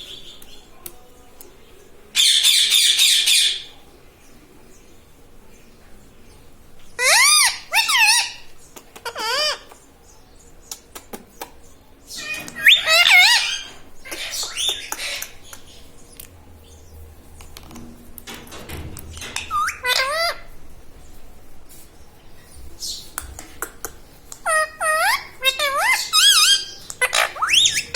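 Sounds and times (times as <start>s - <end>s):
parakeet squawking: 2.2s - 3.7s, 7.0s - 9.7s, 12.1s - 15.4s, 19.4s - 20.5s, 24.4s - 27.9s.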